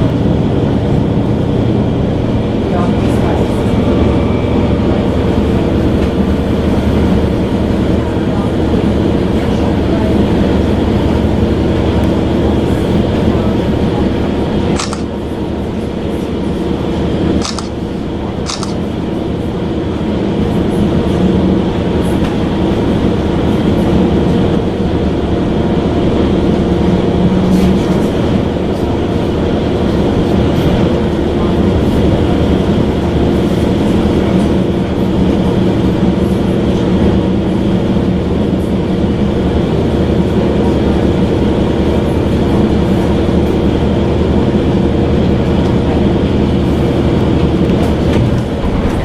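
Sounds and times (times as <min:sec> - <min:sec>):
train rumbling: 0:00.0 - 0:49.0
sharp clicks: 0:17.4 - 0:17.8, 0:18.5 - 0:18.8.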